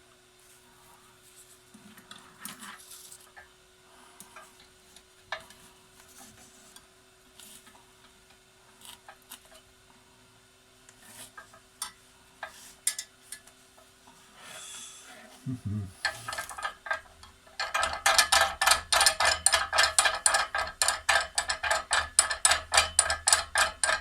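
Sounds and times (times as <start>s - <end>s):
faint hum: 11.7s - 17.4s.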